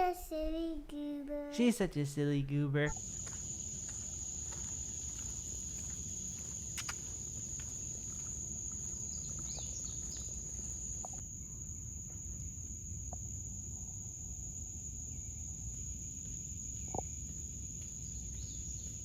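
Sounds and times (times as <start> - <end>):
faint chirps: 2.9 - 11.7
insects trilling: 2.9 - 19.0.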